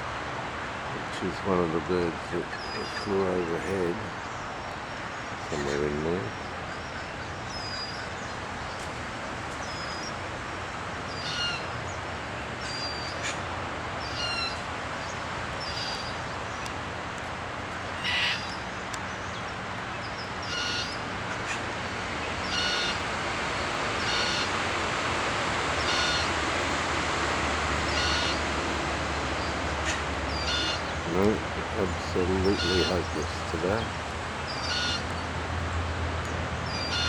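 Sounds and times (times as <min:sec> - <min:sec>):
steady background hiss: 0:00.0 - 0:37.0
bird calling: 0:01.0 - 0:09.0, 0:11.1 - 0:11.8, 0:12.6 - 0:13.4, 0:14.0 - 0:17.2, 0:17.8 - 0:24.7, 0:25.8 - 0:26.8, 0:27.8 - 0:35.3, 0:36.6 - 0:37.0.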